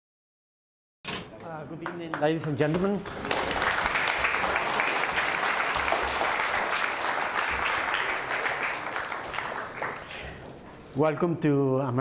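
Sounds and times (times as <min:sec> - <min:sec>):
audience applauding: 0:01.4 - 0:10.6.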